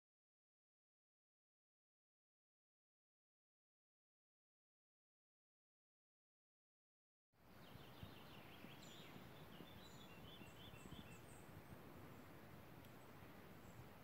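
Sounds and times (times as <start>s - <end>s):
small birds chirping: 7.4s - 14.0s.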